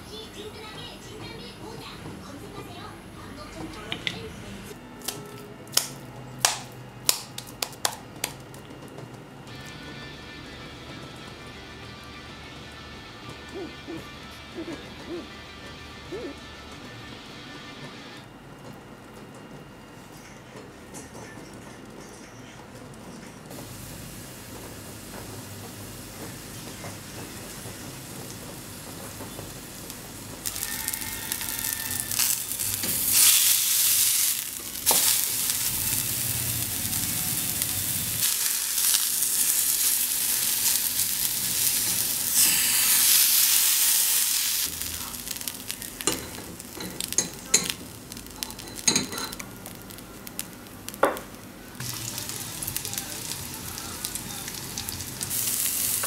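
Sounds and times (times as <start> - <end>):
meat patty sizzling in a pan: 30.4 - 56.0.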